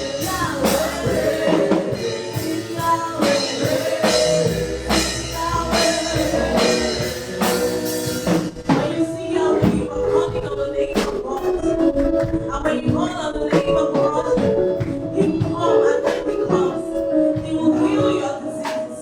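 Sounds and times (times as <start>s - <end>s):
gospel band playing: 0.0s - 19.0s
person singing: 0.0s - 19.0s.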